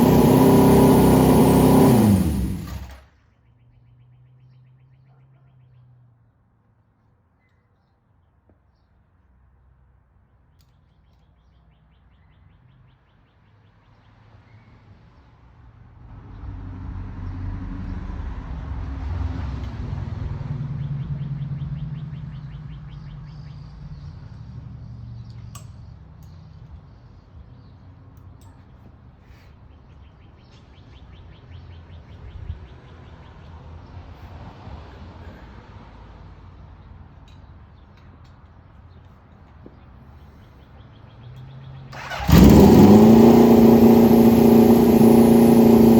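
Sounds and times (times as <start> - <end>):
engine: 0.0 - 4.2, 14.4 - 36.5, 37.2 - 45.9.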